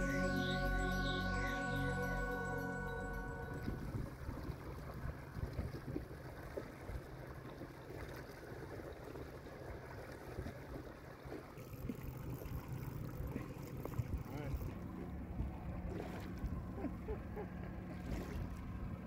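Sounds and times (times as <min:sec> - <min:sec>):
wind rumble on microphone: 0:03.4 - 0:07.1
waves lapping at kayak hull: 0:04.2 - 0:19.0.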